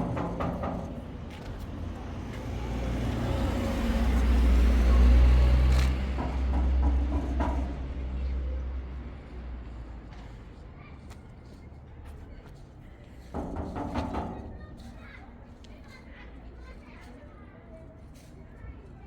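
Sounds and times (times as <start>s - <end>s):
vehicle engine rumble driving past: 1.0s - 9.0s.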